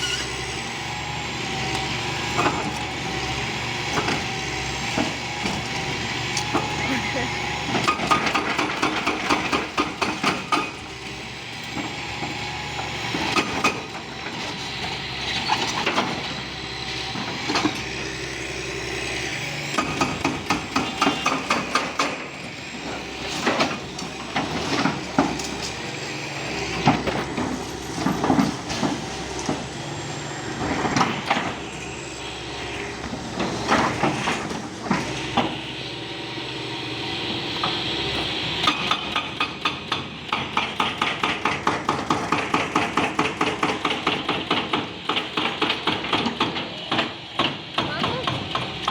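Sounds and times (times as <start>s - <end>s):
demolition hammering: 38.6s - 48.9s.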